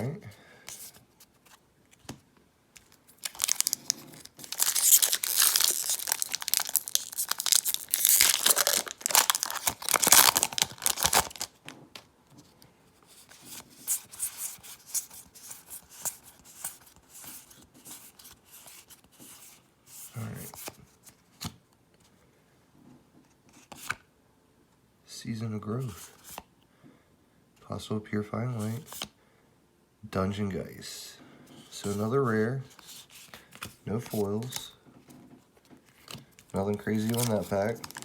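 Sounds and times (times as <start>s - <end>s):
crinkly wrapper tearing: 2.8s - 11.7s, 36.0s - 38.0s
cards rustling and clicking: 2.8s - 12.5s, 13.1s - 19.5s, 32.7s - 38.0s.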